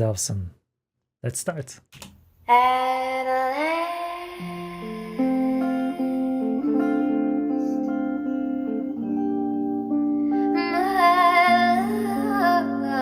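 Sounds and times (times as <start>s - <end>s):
woman singing softly: 2.5s - 7.8s, 10.4s - 13.0s
guitar chords ringing: 3.2s - 13.0s.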